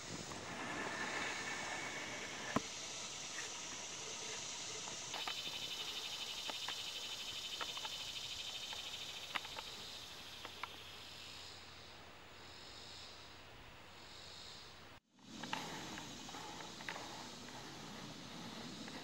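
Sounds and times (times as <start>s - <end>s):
insect trilling: 0.0s - 19.0s
steady outdoor hiss: 0.0s - 19.0s
sharp clicks: 8.6s - 9.8s.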